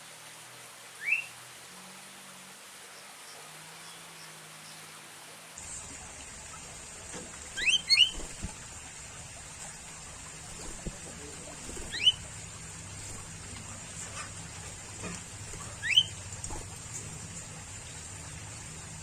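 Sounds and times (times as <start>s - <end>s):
steady high hiss: 0.0s - 19.0s
bird whistled calls: 1.0s - 1.4s, 7.5s - 8.4s, 11.7s - 12.3s, 15.6s - 16.6s.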